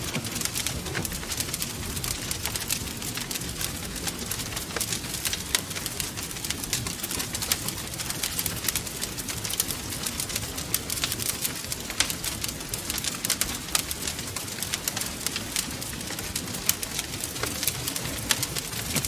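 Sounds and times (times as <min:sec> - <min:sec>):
low rumble of flames: 0:00.0 - 0:19.0
wood fire crackling: 0:00.0 - 0:19.0.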